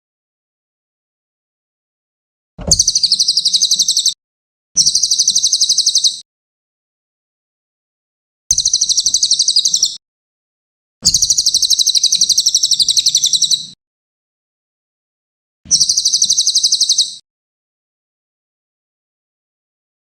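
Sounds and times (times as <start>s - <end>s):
songbird rattling trill: 2.6s - 4.2s, 4.8s - 6.2s, 8.5s - 10.0s, 11.0s - 13.7s, 15.7s - 17.2s.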